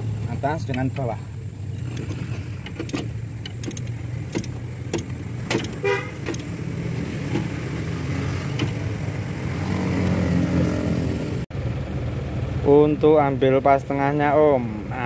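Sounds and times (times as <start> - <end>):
vehicle engine idling: 0.0 - 9.5, 11.5 - 15.0
metallic clicks and taps: 1.9 - 6.5.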